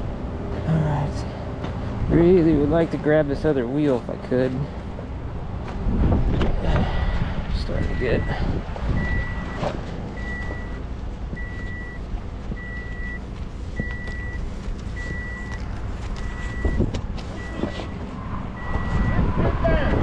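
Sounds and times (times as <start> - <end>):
truck engine idling: 0.0 - 19.2
backup alarm beeping: 7.8 - 19.3.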